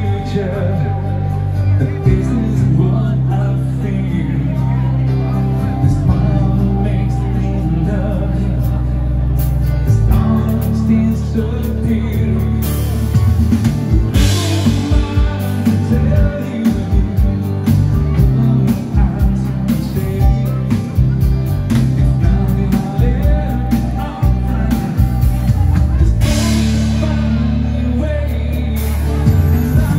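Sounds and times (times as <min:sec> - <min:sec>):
bass and guitar: 0:00.0 - 0:29.9
person singing: 0:00.0 - 0:29.9
steady drum beat: 0:12.4 - 0:29.9.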